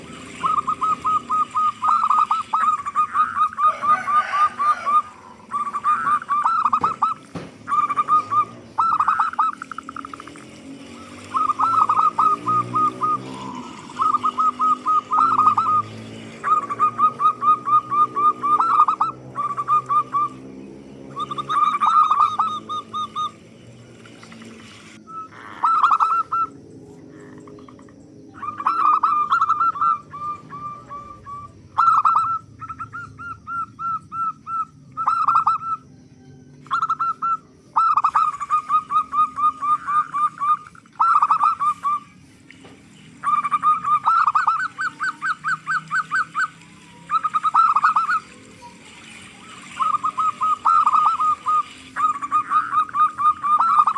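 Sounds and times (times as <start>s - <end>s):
dove cooing: 0.0s - 53.9s.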